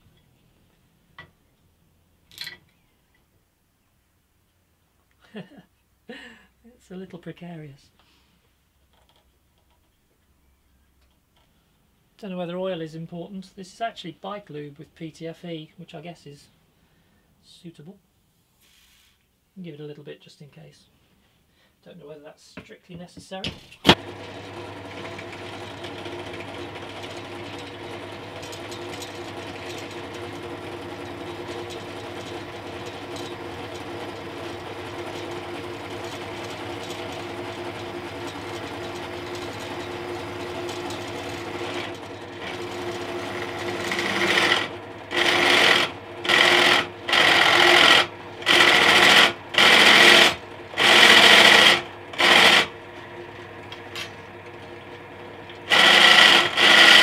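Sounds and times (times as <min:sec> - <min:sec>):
drill bit cutting metal: 0:23.9 - 0:52.8, 0:55.5 - 0:57.0
pillar drill motor hum: 0:23.9 - 0:57.0.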